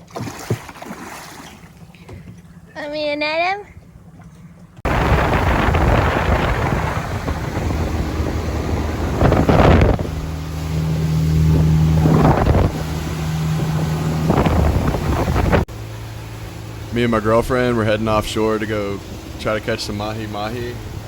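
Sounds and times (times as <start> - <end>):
boat engine running: 0.0 - 21.0
water noise: 0.0 - 21.0
wind buffeting microphone: 4.8 - 15.7.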